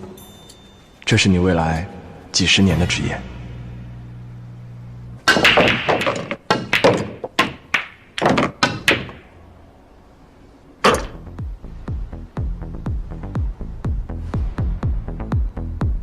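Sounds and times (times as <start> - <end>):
pool balls clacking: 5.2 - 9.4
electronic music with thumping beat: 11.0 - 16.0.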